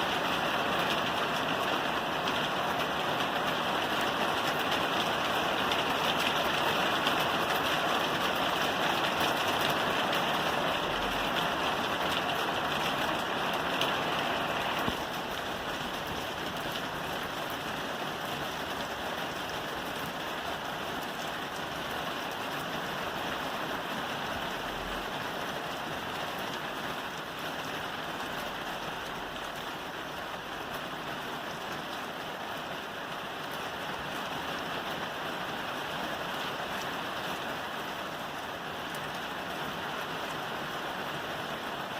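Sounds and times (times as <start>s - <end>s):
rain falling on a roof: 0.0s - 41.9s.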